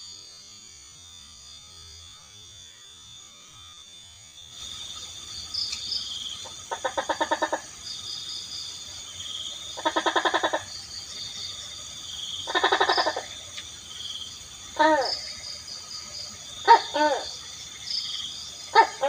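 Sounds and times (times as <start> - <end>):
night insects trilling: 0.0 - 19.0
frog rattling call: 4.6 - 19.0.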